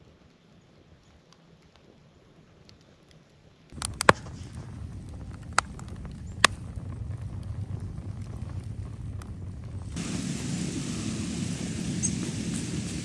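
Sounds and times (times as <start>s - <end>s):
fire pops and cracks: 2.6s - 13.0s
wood fire rumbling: 3.7s - 13.0s.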